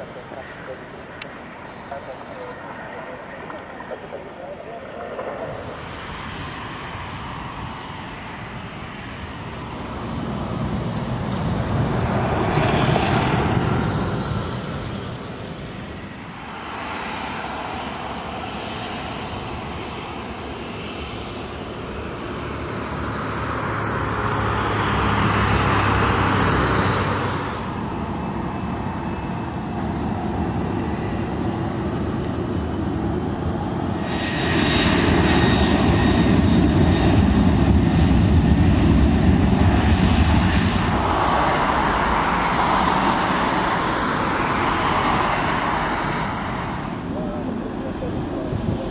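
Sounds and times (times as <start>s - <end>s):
thin steady whine: 0.0s - 9.6s
aircraft engines running: 0.0s - 48.9s.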